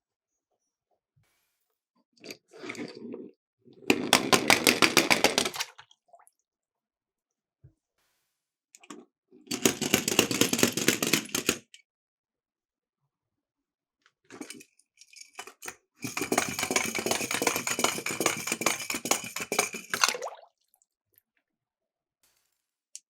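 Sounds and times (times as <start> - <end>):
toy cars clattering down a track: 3.9 - 5.6, 9.5 - 11.8, 15.1 - 20.0.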